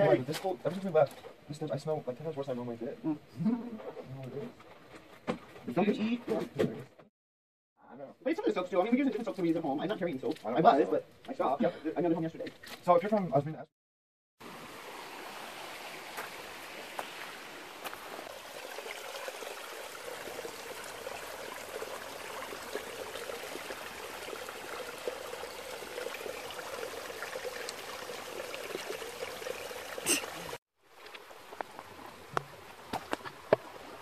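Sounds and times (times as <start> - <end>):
stream rushing: 14.4 - 30.6.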